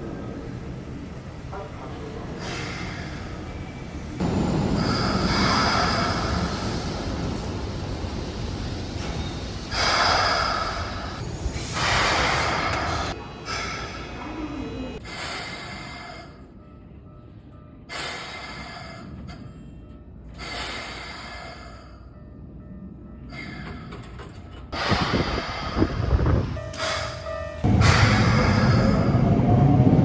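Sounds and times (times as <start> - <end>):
train air brakes hissing: 2.4 - 3.5, 4.2 - 14.2, 15.0 - 16.5, 17.9 - 19.5, 20.4 - 22.1, 24.8 - 29.4.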